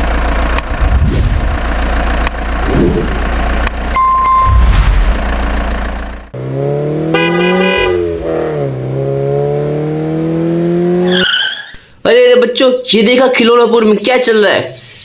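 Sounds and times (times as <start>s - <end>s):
engine rumble: 0.0s - 7.0s
engine drone rising and falling: 0.6s - 7.1s
short beep: 3.9s - 5.1s.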